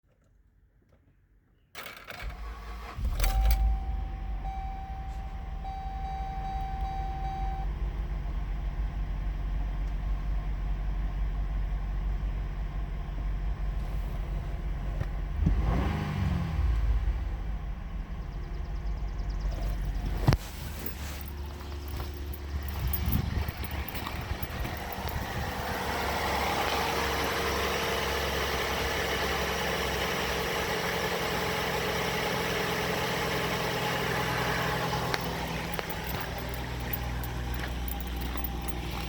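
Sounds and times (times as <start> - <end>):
car engine starting and idling: 1.8 - 39.0
engine revving: 15.3 - 39.0.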